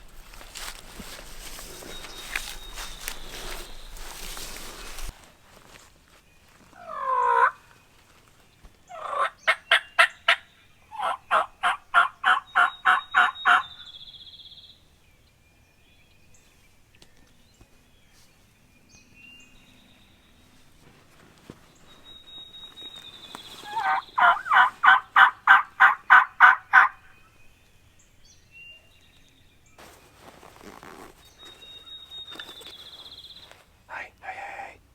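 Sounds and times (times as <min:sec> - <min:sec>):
turkey yelping: 0:06.8 - 0:07.6, 0:08.9 - 0:13.8, 0:23.6 - 0:27.1.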